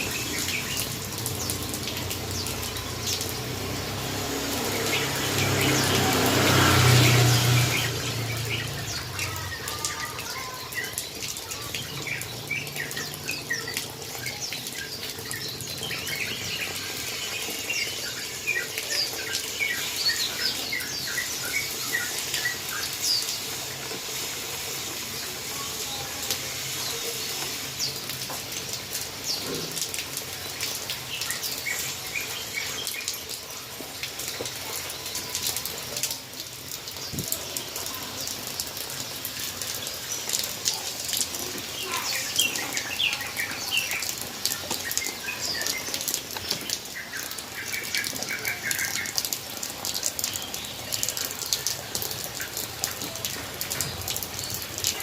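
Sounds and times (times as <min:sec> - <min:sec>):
water spray hissing: 0:00.0 - 0:13.8, 0:14.4 - 0:34.4.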